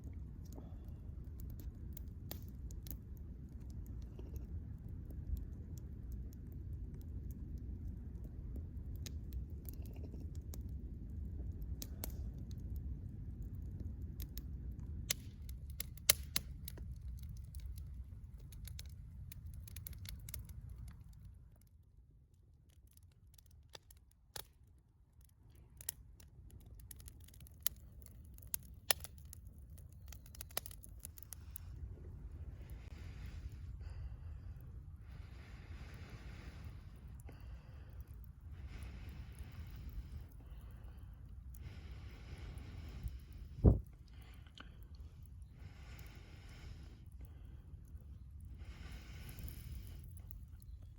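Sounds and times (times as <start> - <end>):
campfire crackling and popping: 0.0 - 50.9
low rumble: 26.6 - 50.9.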